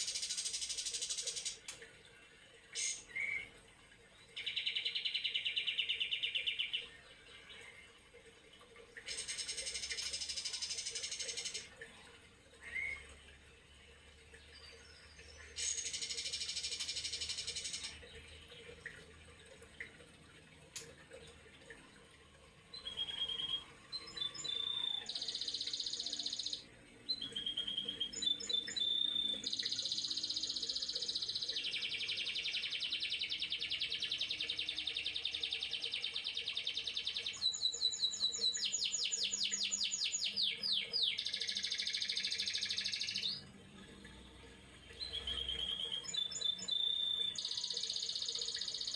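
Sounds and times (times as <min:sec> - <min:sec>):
bird singing fast trills: 0:14.5 - 0:18.0, 0:22.7 - 0:43.5, 0:44.9 - 0:48.9.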